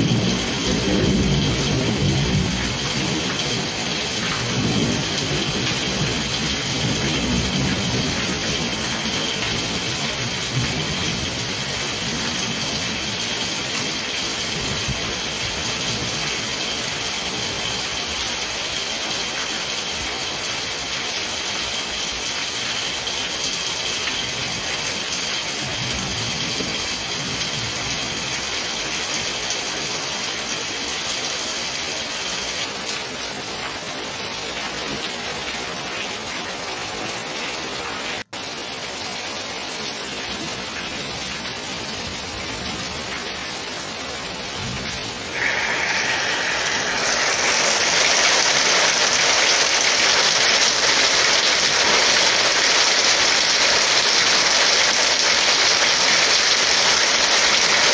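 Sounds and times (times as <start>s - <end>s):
heavy rain pouring: 0.0s - 57.9s.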